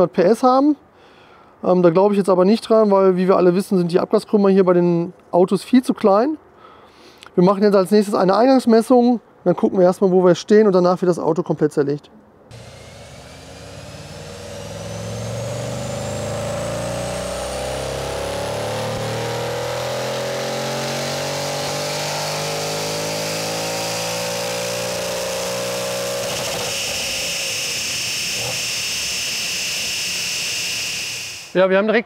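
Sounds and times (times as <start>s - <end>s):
car engine pulling hard: 12.5s - 31.5s
high steady whine: 12.5s - 31.6s.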